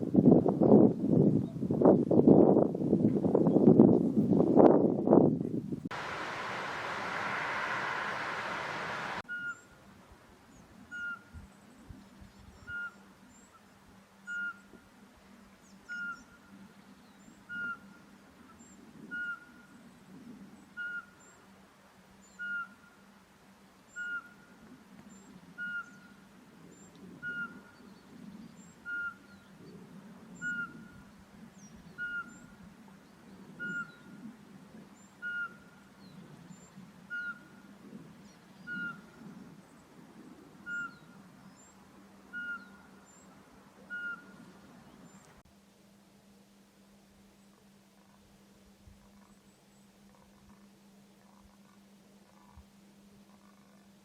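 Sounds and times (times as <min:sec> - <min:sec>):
owl whistling notes: 0:17.5 - 0:17.8, 0:25.6 - 0:26.1, 0:27.2 - 0:27.6, 0:28.8 - 0:29.2, 0:30.4 - 0:30.9, 0:32.0 - 0:32.5, 0:33.6 - 0:34.0, 0:35.2 - 0:35.6, 0:37.1 - 0:37.4, 0:38.6 - 0:39.0, 0:40.6 - 0:41.0, 0:42.3 - 0:42.9, 0:43.9 - 0:44.4.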